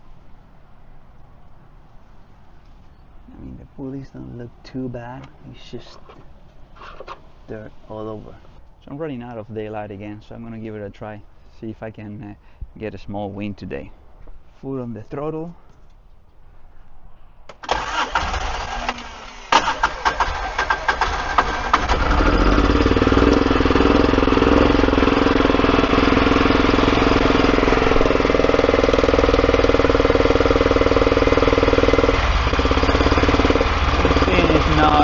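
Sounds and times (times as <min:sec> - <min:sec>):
engine starter cranking: 0:17.5 - 0:23.9
engine running roughly: 0:19.6 - 0:35.0.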